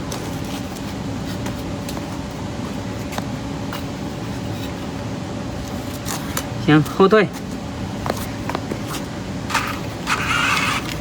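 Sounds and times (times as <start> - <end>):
loader motor humming: 7.9 - 11.0.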